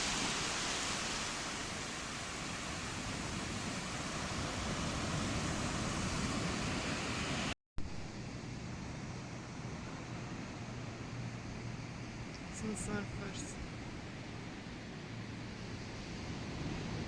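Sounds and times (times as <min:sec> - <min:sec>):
surf washing onto beach: 0:00.0 - 0:07.5.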